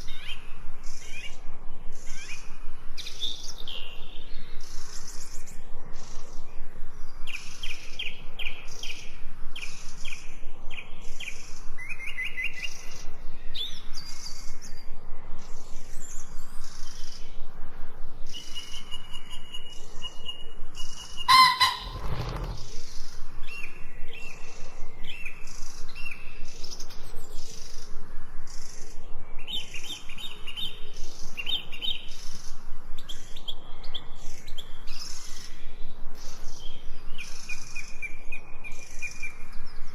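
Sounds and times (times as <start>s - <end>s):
songbirds chirping and singing: 18.3s - 22.7s
loud full bird call: 21.1s - 22.7s.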